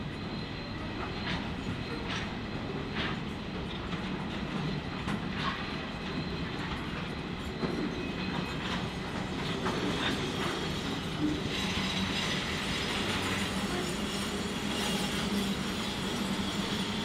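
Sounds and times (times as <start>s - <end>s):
train running on rails: 0.0s - 17.0s.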